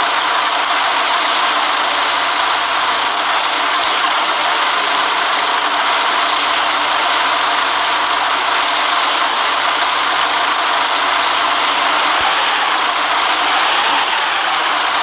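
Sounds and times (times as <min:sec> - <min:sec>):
city bus running: 0:00.0 - 0:15.0.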